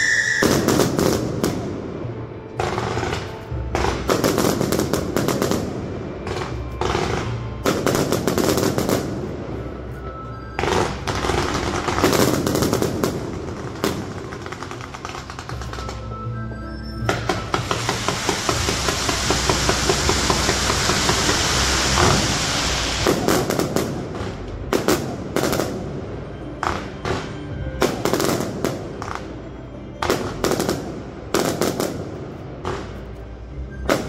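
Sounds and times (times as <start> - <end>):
fireworks crackling: 0.0 - 29.3
firework shells bursting: 17.1 - 24.0.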